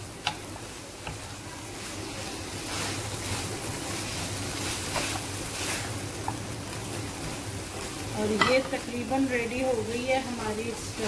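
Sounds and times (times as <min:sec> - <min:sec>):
food sizzling in frying pan: 0:00.0 - 0:11.0
spatula tapping pan: 0:00.2 - 0:01.3
wooden spatula stirring: 0:00.2 - 0:08.8.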